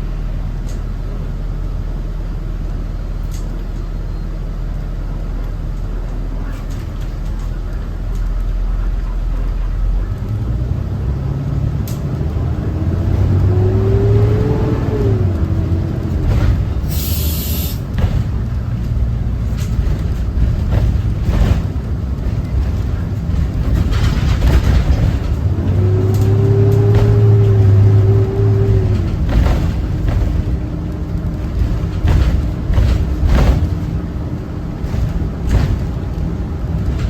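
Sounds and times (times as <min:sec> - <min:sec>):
bus diesel engine accelerating: 0:00.0 - 0:37.0
air hiss: 0:16.9 - 0:17.8.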